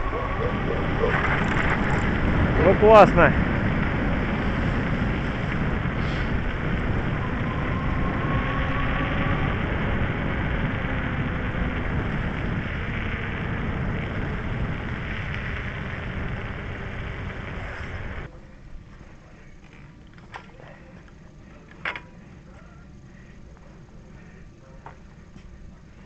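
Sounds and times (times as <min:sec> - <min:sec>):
tyre rumble: 0:00.0 - 0:02.7
wind rush on microphone: 0:00.0 - 0:18.9
faint rising whine: 0:00.0 - 0:26.0.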